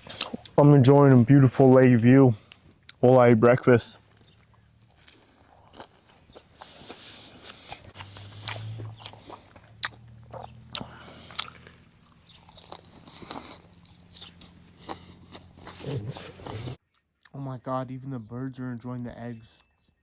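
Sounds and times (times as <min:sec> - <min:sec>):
person chewing crunchy food: 0:00.0 - 0:00.6, 0:04.0 - 0:17.3.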